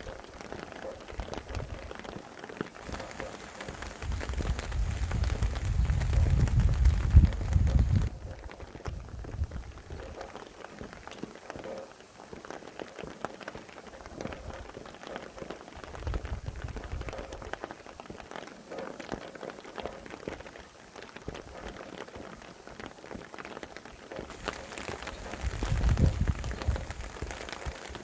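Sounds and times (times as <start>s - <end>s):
steady rain falling: 0.0s - 28.0s
low rumble of wind: 2.8s - 10.2s, 15.8s - 17.6s, 24.3s - 28.0s.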